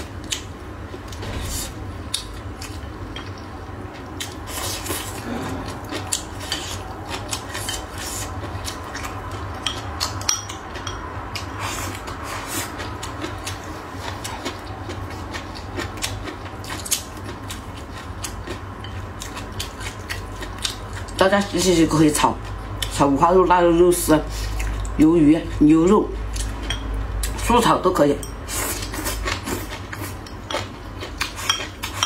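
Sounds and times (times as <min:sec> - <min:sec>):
low steady hum: 0:00.0 - 0:32.0
crunchy chewing: 0:04.0 - 0:21.2.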